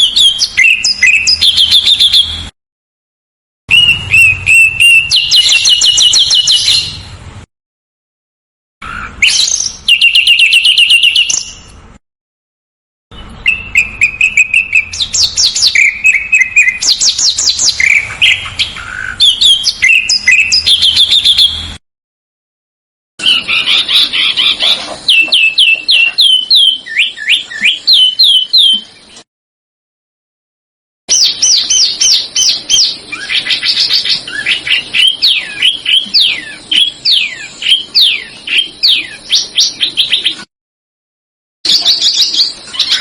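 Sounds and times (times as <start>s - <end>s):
songbird trilling and chirping: 0.0s - 2.4s, 3.7s - 7.1s, 8.8s - 11.8s, 13.2s - 21.6s, 23.2s - 29.0s, 31.1s - 40.5s, 41.7s - 43.0s.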